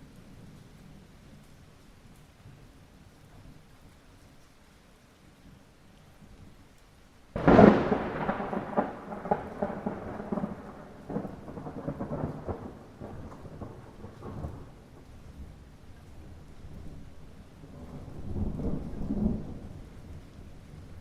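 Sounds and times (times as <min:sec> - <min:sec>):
light rain: 0:00.0 - 0:21.0
thunder rumbling: 0:07.4 - 0:21.0.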